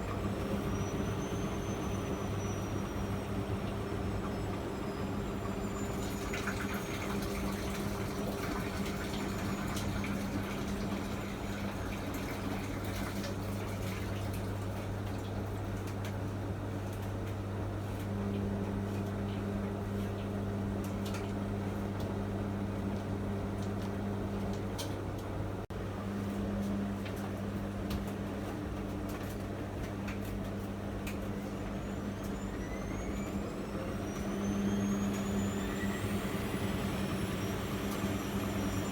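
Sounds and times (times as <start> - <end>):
drum motor whine: 0.0 - 11.8, 31.3 - 38.9.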